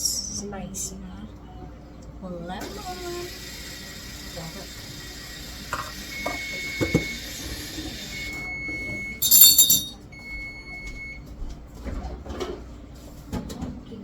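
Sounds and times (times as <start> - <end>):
kitchenware clinking: 5.7 - 7.1, 9.2 - 10.1.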